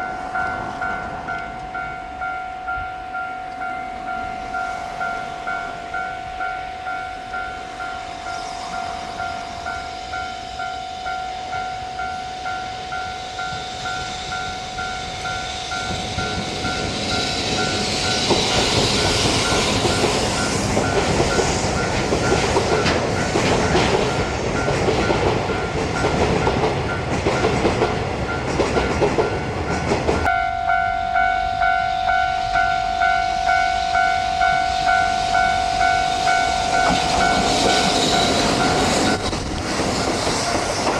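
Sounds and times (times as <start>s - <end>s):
level-crossing warning bell: 0.0s - 39.3s
train wheels clattering: 12.8s - 30.3s, 35.2s - 40.9s.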